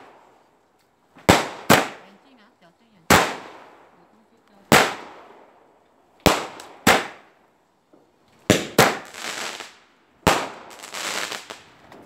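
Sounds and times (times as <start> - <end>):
fireworks bangs: 0.0 - 0.3, 1.1 - 5.6, 6.2 - 7.4, 8.4 - 12.0.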